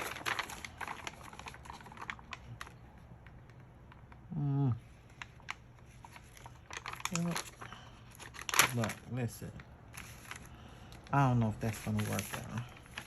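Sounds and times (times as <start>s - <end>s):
paper pieces clicking and rustling: 0.0s - 2.8s, 5.1s - 9.2s, 11.4s - 13.0s
person humming: 4.3s - 4.8s.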